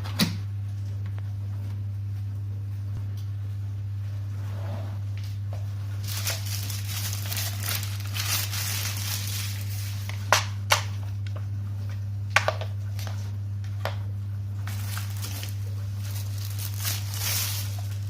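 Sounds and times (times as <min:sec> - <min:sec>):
plastic packaging crinkling: 0:05.9 - 0:10.4, 0:14.6 - 0:18.0.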